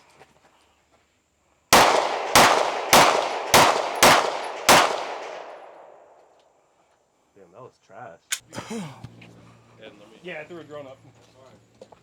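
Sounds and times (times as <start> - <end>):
pistol shots: 1.7 - 6.2.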